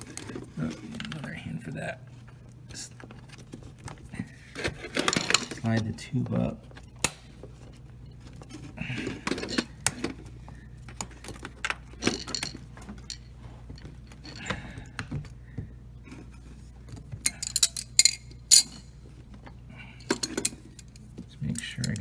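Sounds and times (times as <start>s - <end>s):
faint low hum: 0.0s - 22.0s
small metal and plastic parts clinking: 4.6s - 5.9s, 8.4s - 15.0s, 17.2s - 19.0s, 20.0s - 22.0s.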